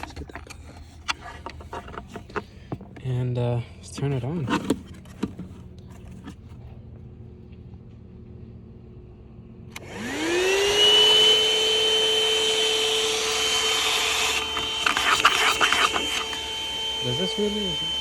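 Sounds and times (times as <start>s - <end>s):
handheld vacuum motor whine: 9.7s - 18.0s.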